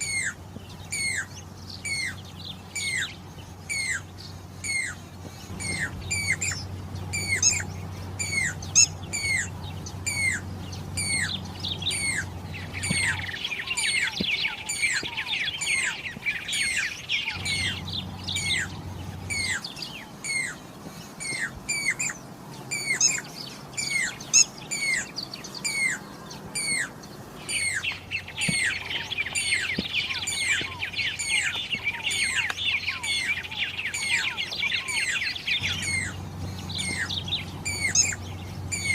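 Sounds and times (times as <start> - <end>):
fast chattering bird notes: 0.0 - 20.6
cuckoo whistled calls: 0.0 - 38.9.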